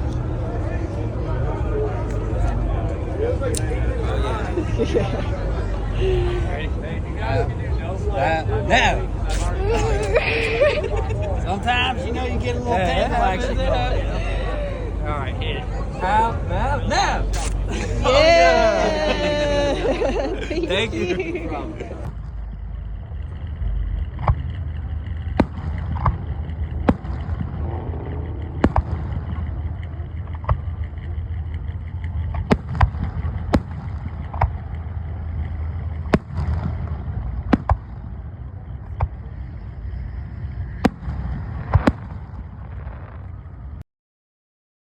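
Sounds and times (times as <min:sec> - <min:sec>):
engine rumbling: 0:00.0 - 0:43.8
sharp pops: 0:17.2 - 0:17.7.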